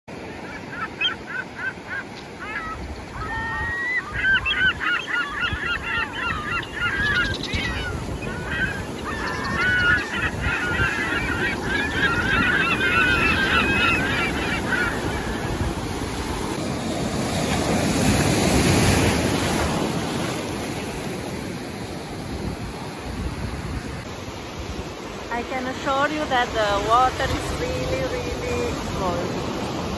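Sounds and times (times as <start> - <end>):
flock of birds calling: 0.2 - 16.6
surf breaking on beach: 14.9 - 29.9.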